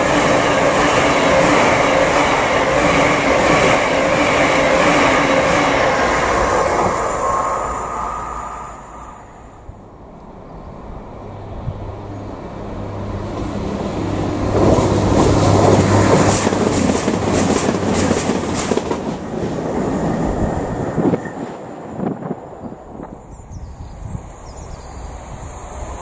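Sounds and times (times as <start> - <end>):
train engine hum: 0.0 - 26.0
train wheel clatter: 13.3 - 23.2.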